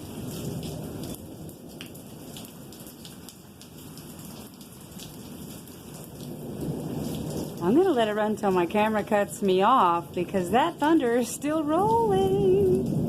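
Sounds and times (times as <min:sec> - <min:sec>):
steady rain: 0:00.0 - 0:13.0
rolling thunder: 0:06.0 - 0:09.0, 0:12.2 - 0:13.0.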